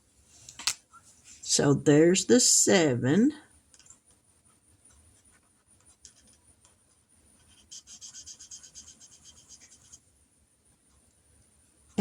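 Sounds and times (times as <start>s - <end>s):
marker scribbling quickly: 4.4s - 10.0s
marker scratching on paper: 5.2s - 10.0s.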